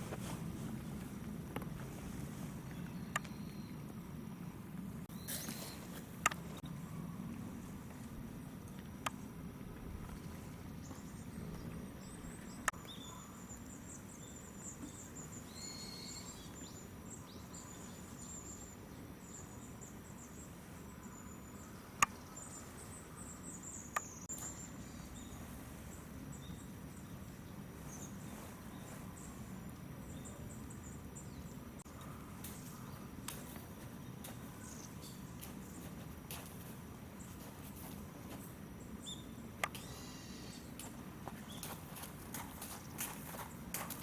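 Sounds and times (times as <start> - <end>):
low background hum: 0.0 - 44.0
small birds twittering: 2.6 - 4.0, 5.0 - 8.1, 9.1 - 44.0
sharp clicks: 39.6 - 39.9.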